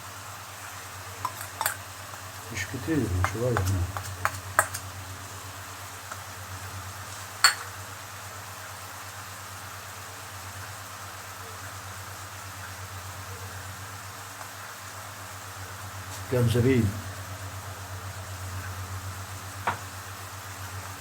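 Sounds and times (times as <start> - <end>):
food sizzling in a pan: 0.0 - 21.0
utensil clinking on pan: 1.2 - 1.8, 3.2 - 4.9, 7.4 - 7.7.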